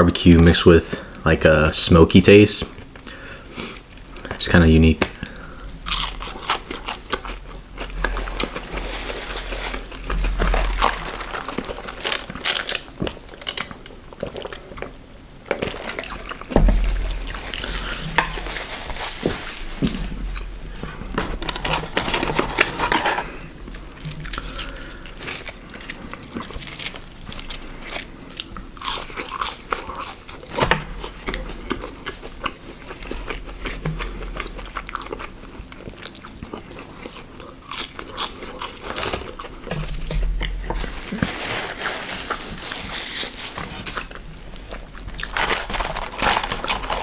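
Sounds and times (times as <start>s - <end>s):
crunchy chewing of food: 4.9s - 47.0s.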